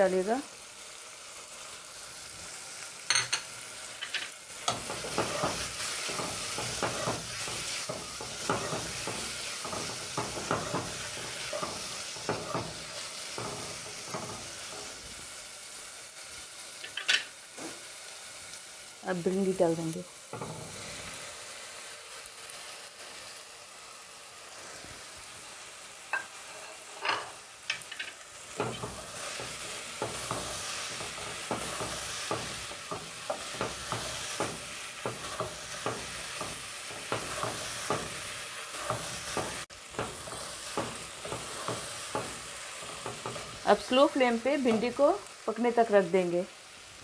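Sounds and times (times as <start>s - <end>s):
vegetables sizzling in hot oil: 0.0s - 47.0s
spatula scraping and knocking pot: 4.0s - 15.0s, 26.2s - 43.7s.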